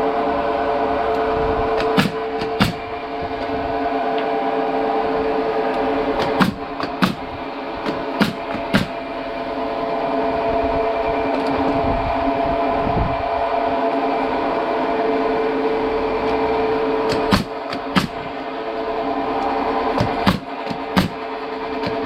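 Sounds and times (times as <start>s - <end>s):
workshop machinery humming: 0.0s - 22.0s
sharp knocks: 1.8s - 2.8s, 6.2s - 9.0s, 17.1s - 18.3s, 20.0s - 21.2s.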